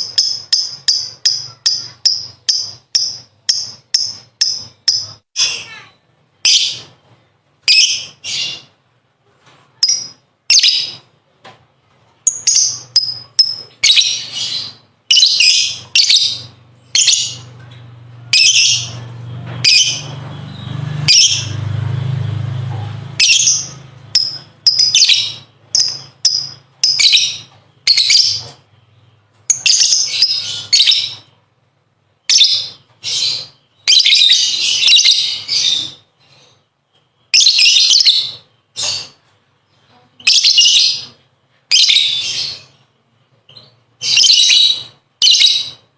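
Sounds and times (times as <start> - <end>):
lovebird chattering: 0.0 - 5.8, 12.2 - 17.5, 23.1 - 28.6.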